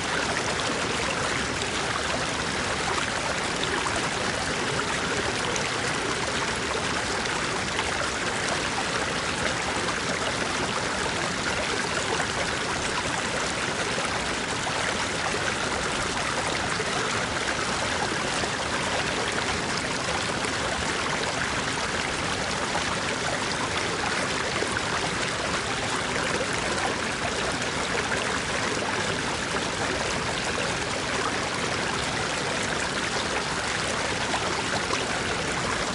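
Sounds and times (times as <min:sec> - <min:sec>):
stream babbling over rocks: 0:00.0 - 0:35.9.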